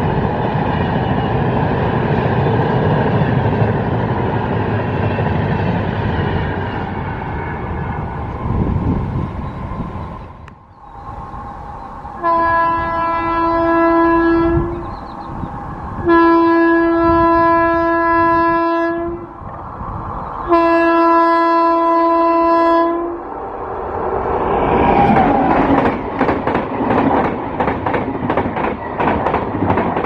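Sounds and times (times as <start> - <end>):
low rumble of train: 0.0 - 30.0
train horn blasts: 12.2 - 15.1, 16.0 - 19.4, 20.4 - 23.3.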